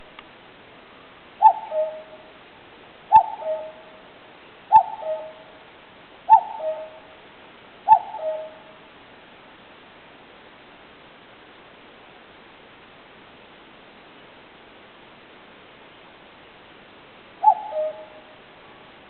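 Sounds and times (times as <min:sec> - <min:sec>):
cuckoo calling: 0:01.4 - 0:02.3, 0:03.1 - 0:04.0, 0:04.7 - 0:05.6, 0:06.3 - 0:07.1, 0:07.9 - 0:08.8, 0:17.4 - 0:18.4.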